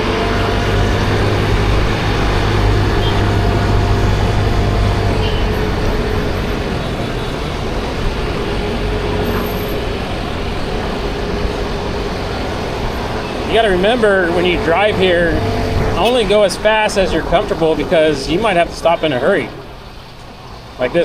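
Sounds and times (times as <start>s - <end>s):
scooter engine running: 0.0s - 16.8s
surrounding motorbikes: 0.0s - 21.0s
tyres on the road: 0.0s - 21.0s.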